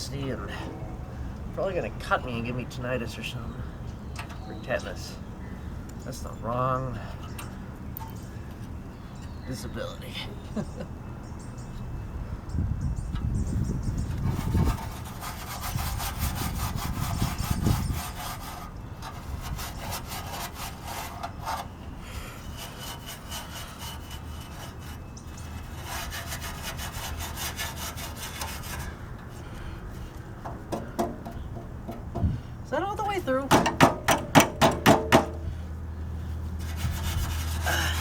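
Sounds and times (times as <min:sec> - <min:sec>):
hand scrubbing metal frame: 0:14.2 - 0:29.7, 0:36.5 - 0:38.0
dull knocks: 0:30.5 - 0:32.4, 0:33.5 - 0:35.4.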